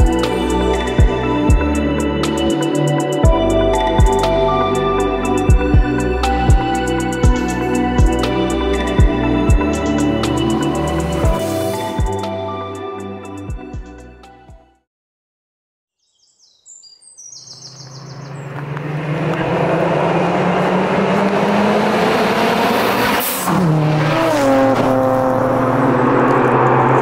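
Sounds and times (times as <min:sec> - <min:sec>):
sports car engines: 0:00.0 - 0:14.0, 0:17.5 - 0:27.0.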